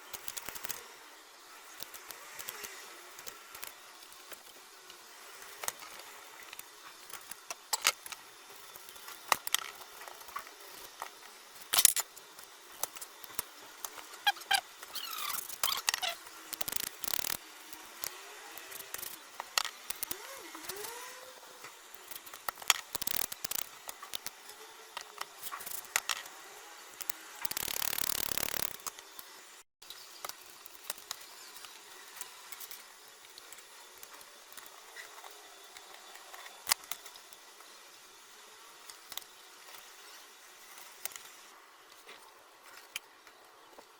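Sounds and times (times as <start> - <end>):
tools clicking and scraping: 5.4 - 21.0, 21.6 - 26.4, 27.0 - 29.0.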